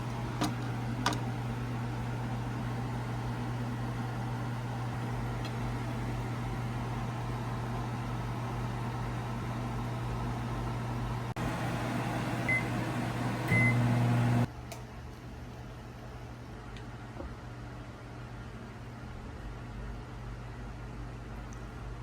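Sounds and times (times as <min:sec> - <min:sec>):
machine hum: 0:00.0 - 0:14.5.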